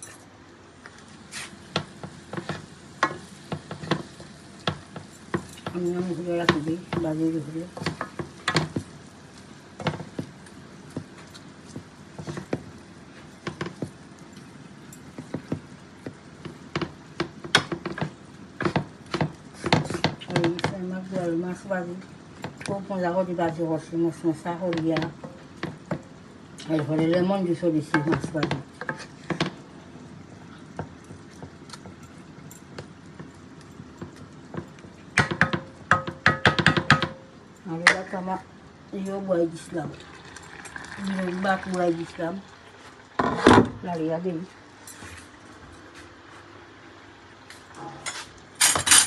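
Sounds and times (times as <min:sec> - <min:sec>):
steady background hiss: 0:00.0 - 0:49.0
kitchen utensils clicking: 0:48.0 - 0:49.0.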